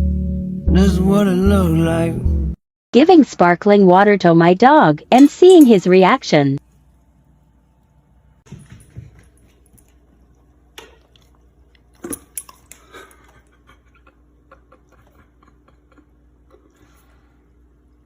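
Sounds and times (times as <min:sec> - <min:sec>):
dog drinking and licking: 0:09.6 - 0:12.9.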